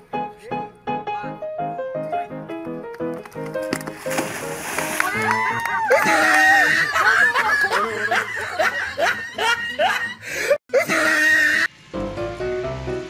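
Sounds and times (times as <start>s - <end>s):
background music: 0.0s - 6.4s, 11.8s - 13.0s
people laughing: 5.1s - 11.3s.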